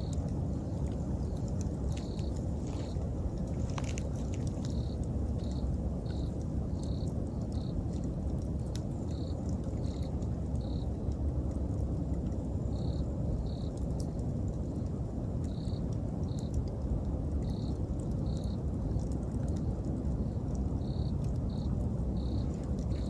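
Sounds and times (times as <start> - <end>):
insect chirping: 0.0 - 7.9, 8.9 - 10.9, 12.7 - 13.8, 15.5 - 16.6, 17.4 - 18.6, 20.2 - 23.0
bonfire burning and crackling: 0.0 - 23.0.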